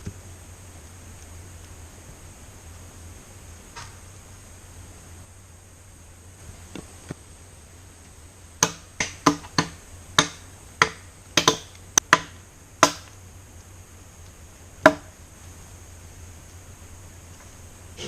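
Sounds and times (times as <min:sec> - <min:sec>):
steady high hum: 0:00.0 - 0:18.0
sharp ringing knocks: 0:08.6 - 0:13.1.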